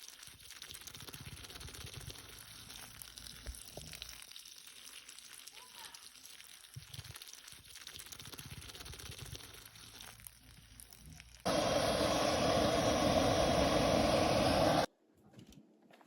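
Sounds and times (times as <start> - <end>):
steady rushing noise: 11.5 - 14.9.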